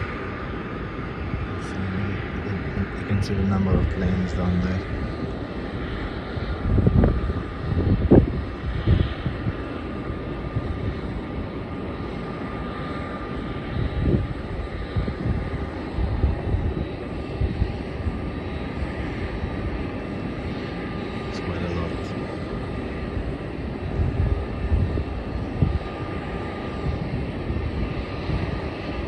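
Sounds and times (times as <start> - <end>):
distant jet engines rumbling: 0.0 - 29.0
low gusty surges: 0.0 - 29.0.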